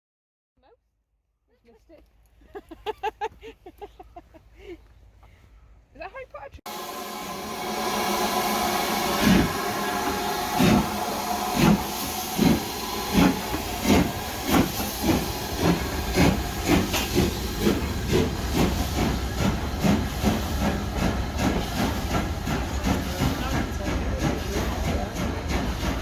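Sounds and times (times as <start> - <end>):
steam hissing: 6.7 - 26.0
steam locomotive chuffing: 6.7 - 26.0.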